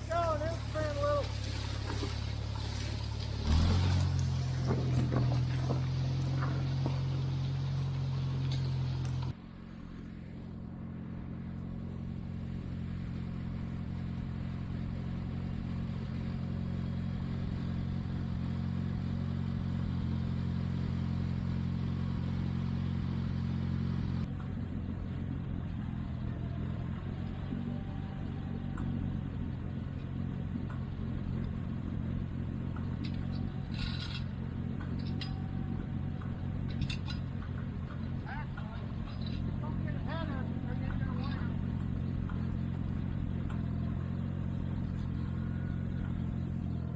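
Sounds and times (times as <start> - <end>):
tractor engine running: 0.0 - 46.9
light clanks: 1.3 - 9.4, 29.8 - 46.9.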